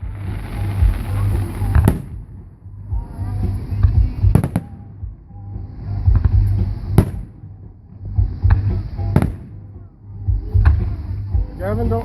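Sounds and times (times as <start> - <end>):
fireworks bangs: 0.0 - 5.0, 6.1 - 7.4, 8.3 - 9.8
music: 0.0 - 12.0.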